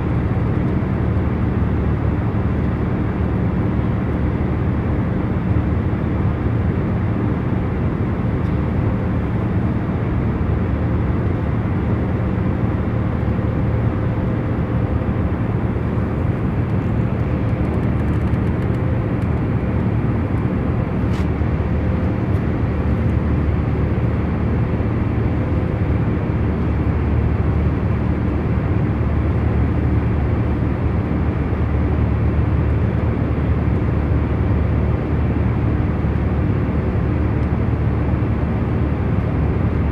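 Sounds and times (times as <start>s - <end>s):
airliner cabin hum: 8.1s - 34.3s.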